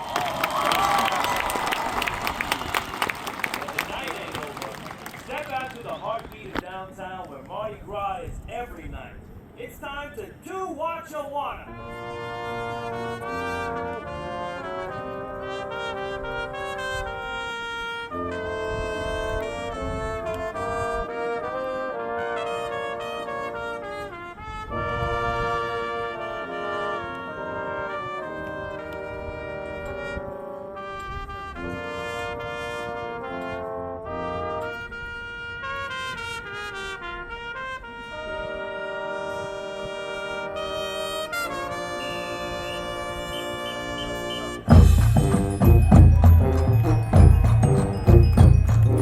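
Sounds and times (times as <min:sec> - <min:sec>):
brass section playing melody: 0:11.7 - 0:49.0
low drum hits: 0:44.7 - 0:49.0.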